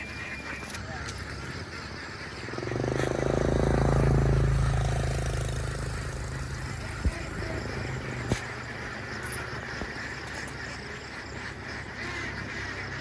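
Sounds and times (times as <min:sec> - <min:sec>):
vehicle engine passing by: 0:01.5 - 0:10.4.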